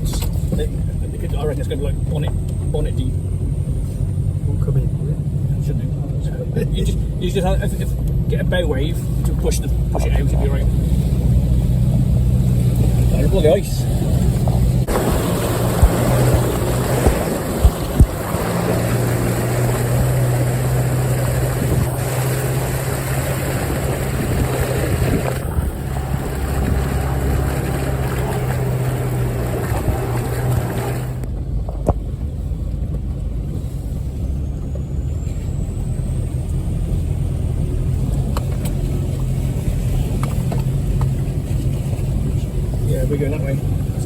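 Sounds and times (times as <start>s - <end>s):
vehicle engine running: 0.0s - 44.0s
water rushing and splashing: 9.8s - 31.3s.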